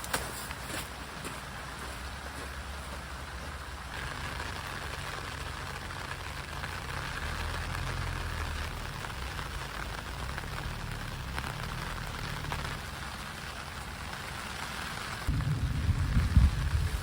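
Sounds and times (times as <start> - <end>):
steady rain falling: 0.0 - 17.0
wind buffeting microphone: 15.3 - 17.0.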